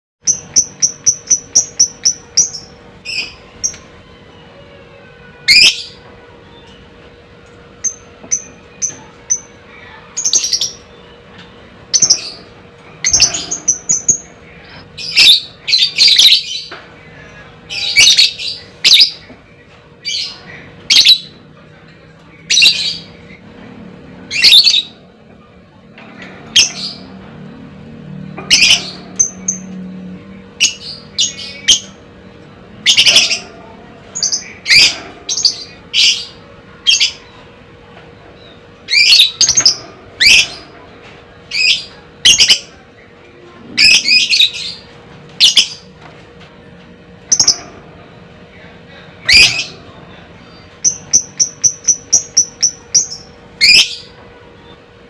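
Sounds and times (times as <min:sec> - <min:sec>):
bird chirping and squawking: 0:05.4 - 0:06.9, 0:11.9 - 0:16.8, 0:17.7 - 0:19.3, 0:20.0 - 0:21.4, 0:24.2 - 0:25.1, 0:26.4 - 0:27.2, 0:28.3 - 0:29.8, 0:30.5 - 0:32.0, 0:32.8 - 0:37.4, 0:38.4 - 0:40.8, 0:41.5 - 0:42.8, 0:43.8 - 0:45.9, 0:47.2 - 0:47.8, 0:49.2 - 0:49.8, 0:50.4 - 0:54.2.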